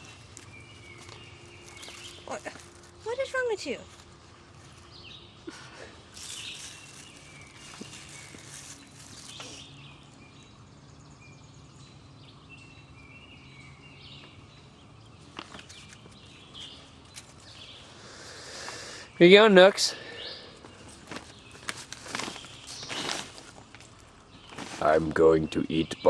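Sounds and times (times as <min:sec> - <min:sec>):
bird chirps: 0:00.0 - 0:23.3
small knocks and rustles: 0:15.3 - 0:17.6.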